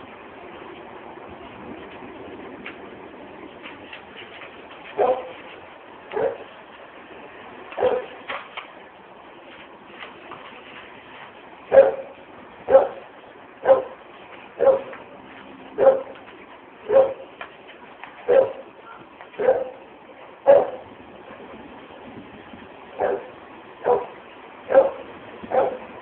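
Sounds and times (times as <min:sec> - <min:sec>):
dog barking: 0:05.0 - 0:05.4, 0:06.1 - 0:06.5, 0:07.8 - 0:08.2, 0:11.7 - 0:13.0, 0:13.6 - 0:14.0, 0:14.6 - 0:15.0, 0:15.8 - 0:16.2, 0:16.9 - 0:17.2, 0:18.3 - 0:18.6, 0:19.4 - 0:19.8, 0:20.4 - 0:20.9, 0:23.0 - 0:25.9.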